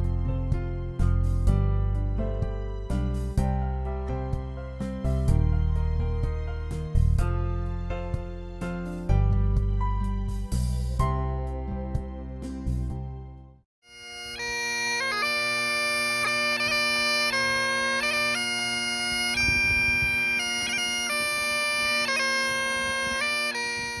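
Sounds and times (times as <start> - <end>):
bagpipe music: 13.8 - 24.0.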